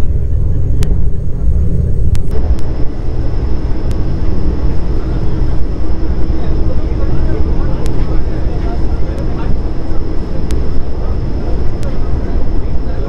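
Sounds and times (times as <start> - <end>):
faint high whine: 0.0 - 13.0
train rumble from inside coach: 0.0 - 13.0.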